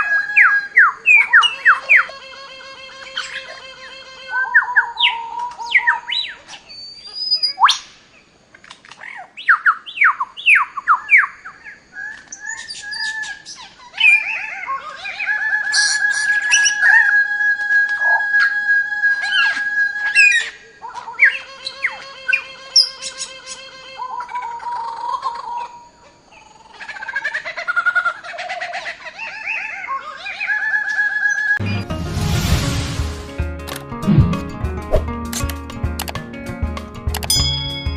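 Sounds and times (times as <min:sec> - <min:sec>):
long whistled bird notes: 0:00.0 - 0:02.1, 0:12.4 - 0:20.6
background music: 0:31.6 - 0:37.9.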